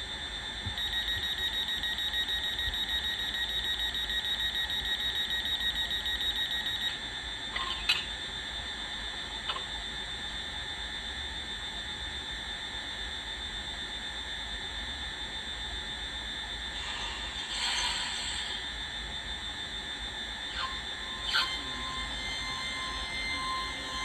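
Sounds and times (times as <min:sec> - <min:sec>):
fast-pulsing electronic alarm tone: 0:00.7 - 0:07.4, 0:18.5 - 0:24.0.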